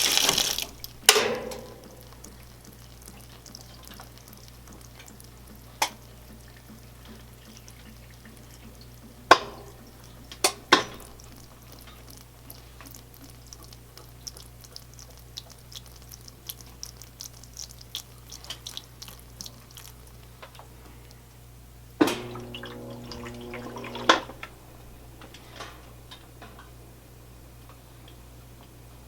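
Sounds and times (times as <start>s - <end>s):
steady low hum: 0.0s - 29.0s
light irregular ticks and clicks: 0.8s - 21.2s.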